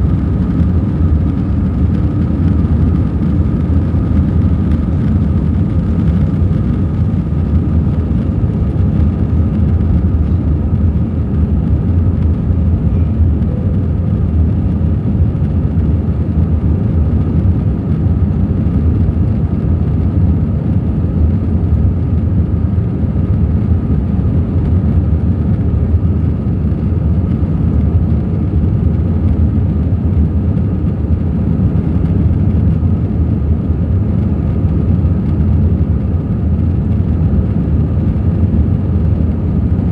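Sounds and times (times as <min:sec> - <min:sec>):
faint steady whine: 0:00.0 - 0:39.9
jet engine rumble in cabin: 0:00.0 - 0:39.9.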